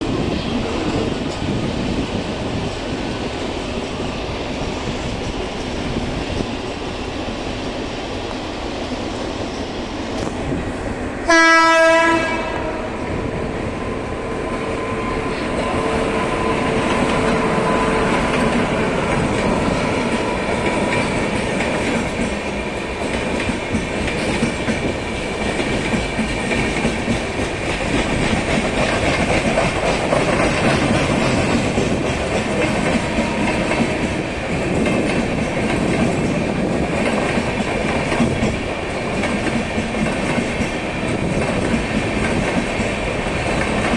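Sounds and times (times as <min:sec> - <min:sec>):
train wheels clattering on rails: 0:00.0 - 0:43.9
train horn blast: 0:11.3 - 0:13.0.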